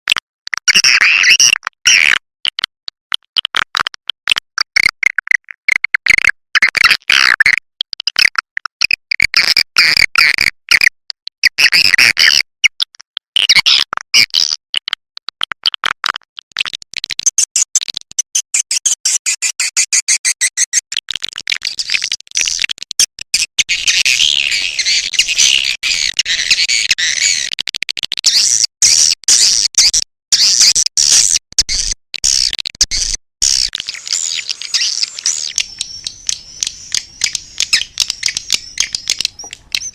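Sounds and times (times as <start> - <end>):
swiftlet chirps and twittering: 23.7 - 26.6, 33.4 - 39.9.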